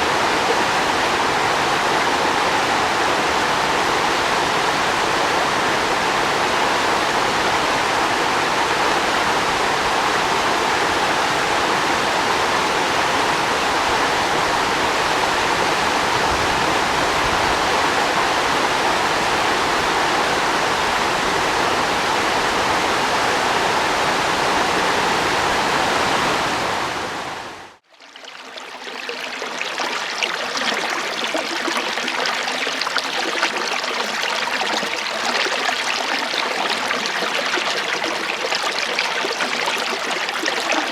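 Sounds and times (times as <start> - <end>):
water rushing: 0.0 - 40.9
water trickling: 27.9 - 40.9.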